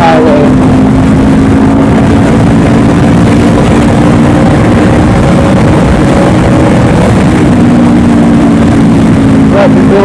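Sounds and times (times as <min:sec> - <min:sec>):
motorcycle engine at speed: 0:00.0 - 0:10.0
wind rush: 0:00.0 - 0:10.0.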